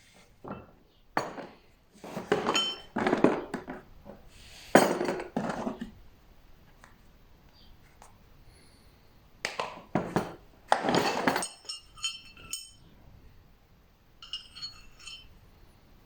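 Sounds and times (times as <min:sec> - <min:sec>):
hard objects knocking and clattering: 0:00.4 - 0:06.0, 0:09.4 - 0:12.8
bright ringing clinks: 0:11.1 - 0:12.9, 0:14.2 - 0:15.5.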